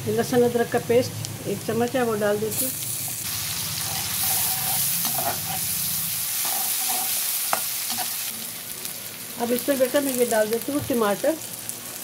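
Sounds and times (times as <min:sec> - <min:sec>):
onions sizzling in hot oil: 0:00.1 - 0:12.0
metal spatula scraping pan: 0:03.8 - 0:05.7, 0:06.4 - 0:08.2.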